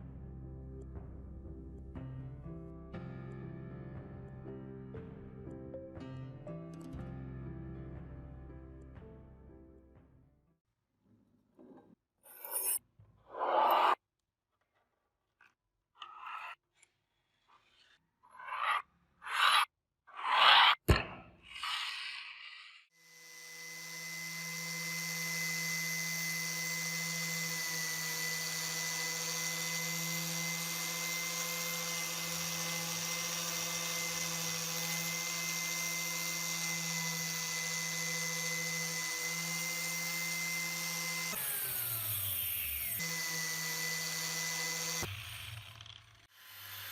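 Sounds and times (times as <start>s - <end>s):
short scraping strokes: 17.5s - 20.8s
electric power tool motor whine: 23.0s - 46.9s.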